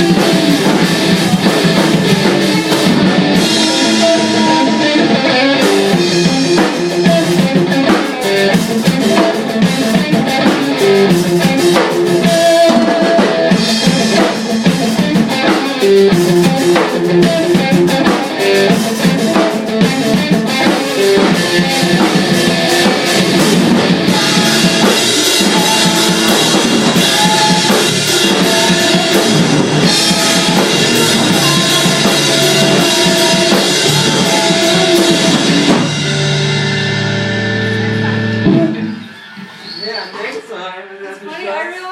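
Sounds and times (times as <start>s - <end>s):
rock band playing: 0.0s - 39.9s
drum kit with rimshots: 0.0s - 40.2s.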